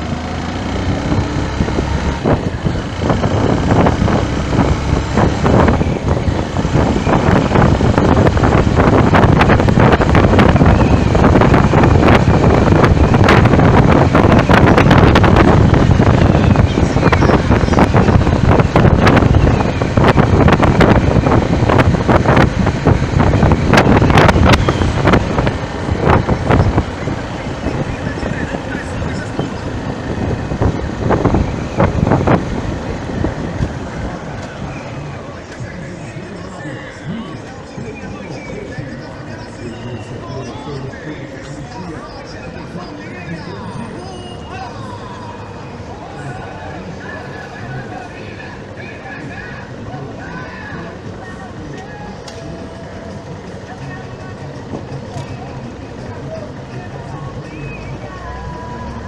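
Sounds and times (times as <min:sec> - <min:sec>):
moving vehicle rumble: 0:00.0 - 0:59.0
road traffic: 0:00.0 - 0:59.0
wind buffeting microphone: 0:00.7 - 0:35.2.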